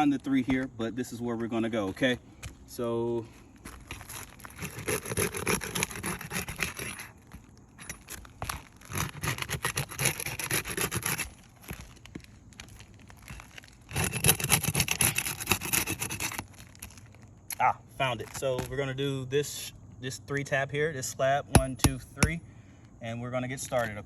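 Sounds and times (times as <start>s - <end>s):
scraping on roof shingles: 3.2s - 17.3s.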